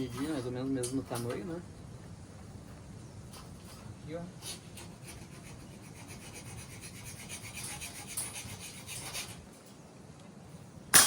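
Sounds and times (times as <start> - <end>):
rasping cutting of steel bar: 4.4 - 9.5.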